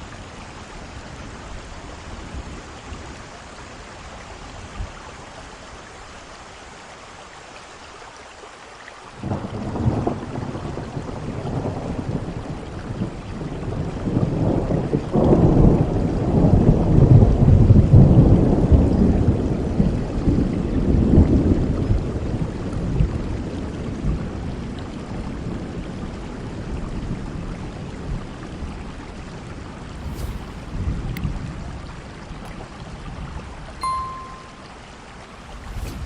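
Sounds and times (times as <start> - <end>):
heavy rain: 0.0 - 36.0
thunder rumbling: 29.9 - 31.4, 35.3 - 36.0.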